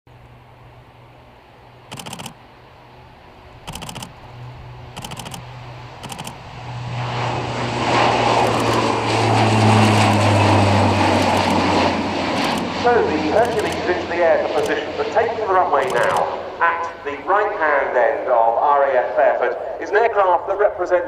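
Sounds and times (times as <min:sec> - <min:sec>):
turboprop engines droning: 0:00.1 - 0:21.0
camera shutter clicking rapidly: 0:01.9 - 0:02.4, 0:03.7 - 0:04.1, 0:05.0 - 0:06.4, 0:08.4 - 0:08.9, 0:11.1 - 0:11.7, 0:12.3 - 0:12.7, 0:13.4 - 0:13.8, 0:15.8 - 0:16.2.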